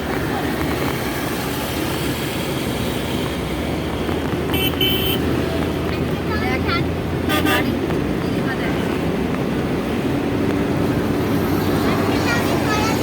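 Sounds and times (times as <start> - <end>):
road and engine noise inside car: 0.0 - 13.0
car horn toots: 4.5 - 5.2, 7.3 - 7.8.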